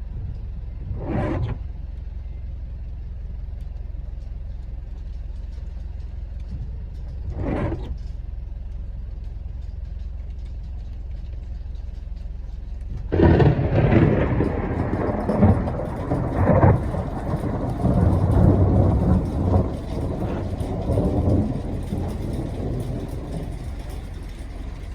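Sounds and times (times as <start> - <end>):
low hum: 0.0 - 24.9
loud thunder clap: 13.1 - 23.9
thunder rumbling: 13.1 - 24.9.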